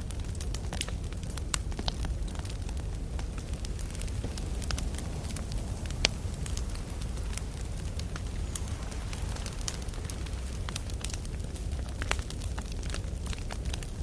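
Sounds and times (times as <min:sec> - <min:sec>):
campfire crackling and popping: 0:00.0 - 0:14.0
low rumble: 0:00.0 - 0:14.0.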